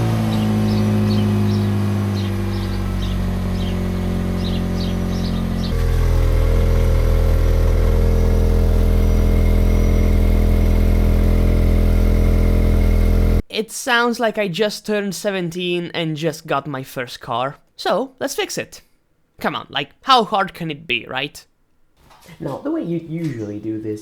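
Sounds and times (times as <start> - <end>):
car engine through holed exhaust: 0.0 - 13.4
faint bird chirps: 0.3 - 5.8.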